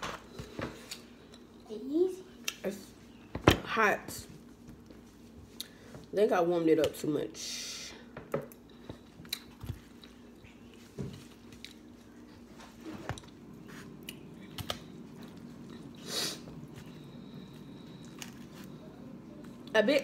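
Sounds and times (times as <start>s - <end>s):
person chewing food: 8.5s - 19.7s.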